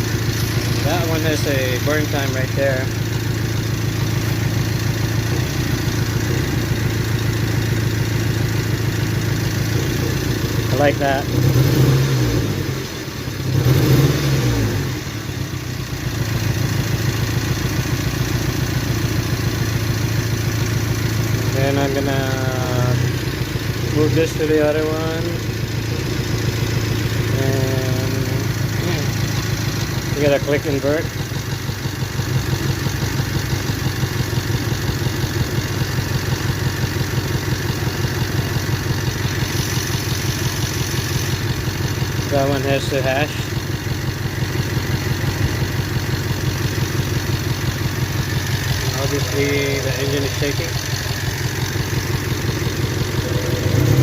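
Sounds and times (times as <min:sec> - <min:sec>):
car engine idling with misfire: 0:00.0 - 0:54.0.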